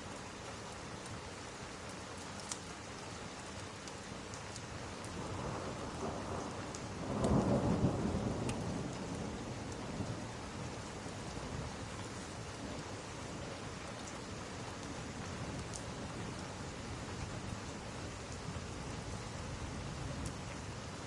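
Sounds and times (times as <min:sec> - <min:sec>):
steady rain: 0:00.0 - 0:21.0
faint sharp ticks: 0:06.7 - 0:07.5, 0:08.4 - 0:08.6.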